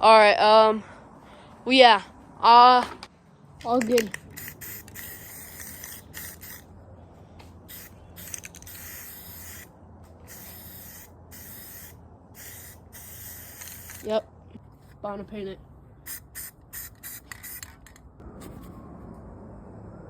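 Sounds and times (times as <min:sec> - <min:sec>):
spray-paint can hissing: 0:03.8 - 0:06.7, 0:07.7 - 0:09.7, 0:10.3 - 0:14.1, 0:16.1 - 0:17.7.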